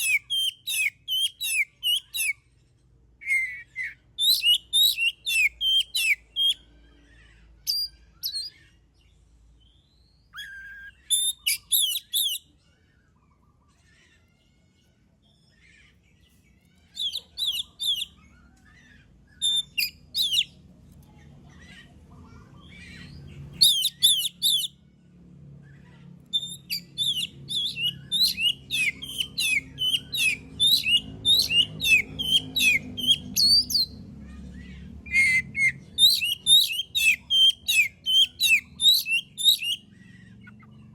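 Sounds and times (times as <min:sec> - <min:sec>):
bird singing whistled notes: 0:00.0 - 0:02.4, 0:03.2 - 0:06.6, 0:09.6 - 0:12.4, 0:17.0 - 0:18.2, 0:19.3 - 0:20.6, 0:23.6 - 0:24.7, 0:26.4 - 0:33.9, 0:35.1 - 0:40.7
faint low hum: 0:01.7 - 0:40.9.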